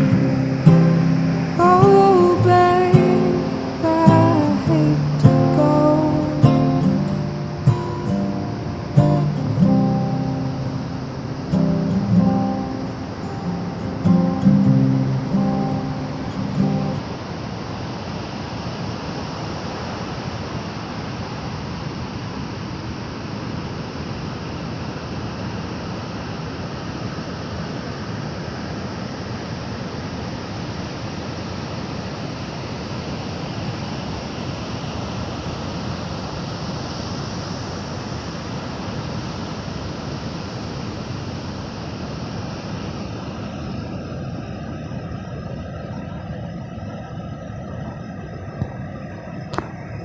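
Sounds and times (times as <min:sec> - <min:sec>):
strummed acoustic guitar song: 0:00.0 - 0:17.0
ocean surf breaking: 0:00.0 - 0:50.0.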